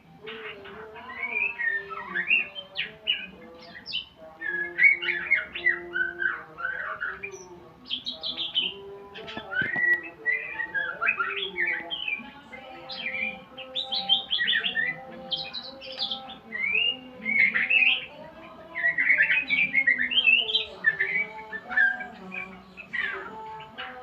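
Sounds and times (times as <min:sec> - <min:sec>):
songbird whistling and chirping: 0:00.1 - 0:24.0.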